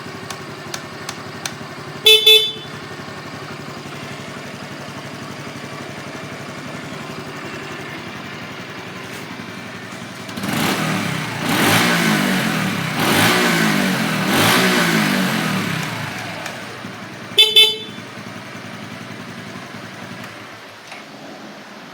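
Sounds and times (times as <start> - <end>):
motorcycle engine idling and revving: 0.0 - 21.9
horn beep: 2.0 - 2.9, 17.4 - 18.2.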